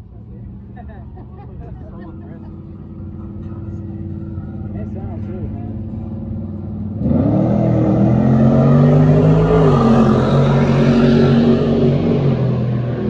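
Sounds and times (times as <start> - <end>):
vehicle engine revving hard: 6.9 - 13.0.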